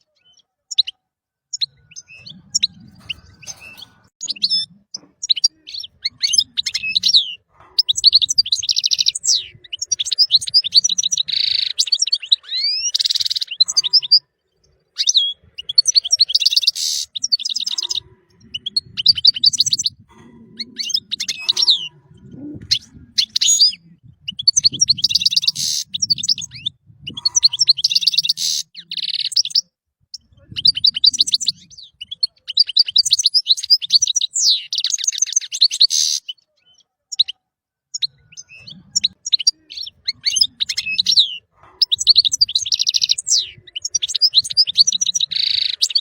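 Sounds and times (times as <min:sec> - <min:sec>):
goldfinch singing: 0:00.2 - 0:46.0.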